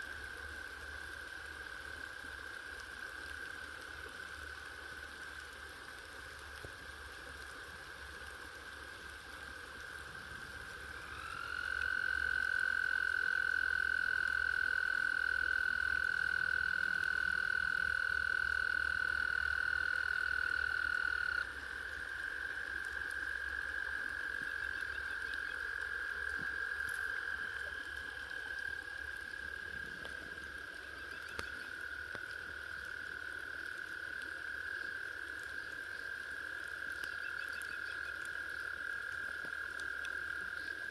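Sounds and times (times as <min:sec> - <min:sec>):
frogs trilling: 0:10.8 - 0:40.9.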